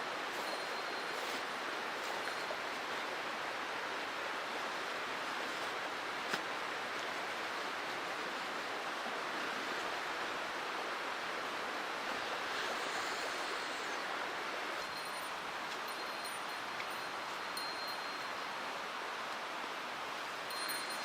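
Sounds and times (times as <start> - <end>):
faint high metallic ringing: 0.3 - 1.4, 14.8 - 18.6, 20.5 - 21.0.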